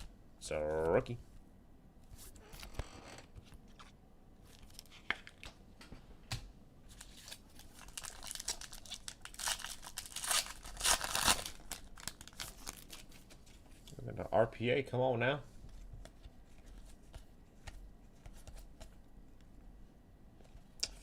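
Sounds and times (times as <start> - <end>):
foil wrapper crinkling and tearing: 6.9 - 13.5.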